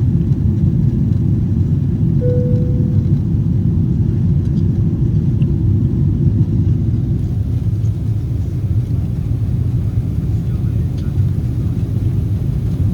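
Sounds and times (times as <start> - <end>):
airplane cabin rumble: 0.6 - 12.9
short tone: 2.2 - 3.4.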